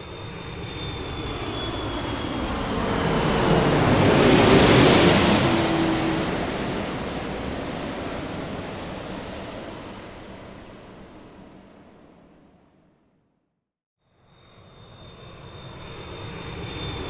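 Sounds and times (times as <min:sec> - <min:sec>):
airliner cabin engine rush: 0:00.0 - 0:12.4, 0:14.8 - 0:17.0.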